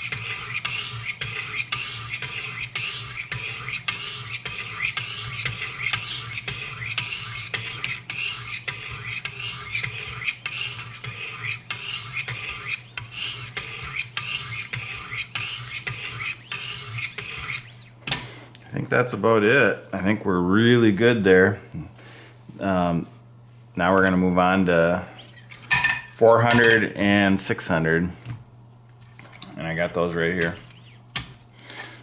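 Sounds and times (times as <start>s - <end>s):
knife rasping on sharpening stone: 0.0s - 17.9s.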